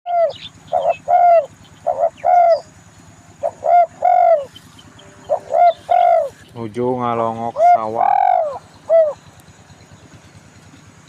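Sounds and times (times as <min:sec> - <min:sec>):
dove cooing: 0:00.1 - 0:06.4, 0:07.2 - 0:09.3.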